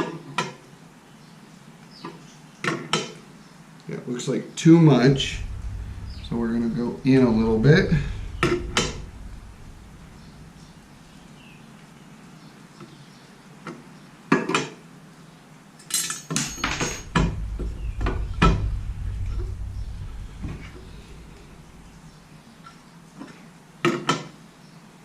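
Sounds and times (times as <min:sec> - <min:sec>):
low rumble: 0:04.7 - 0:12.0, 0:16.4 - 0:23.0.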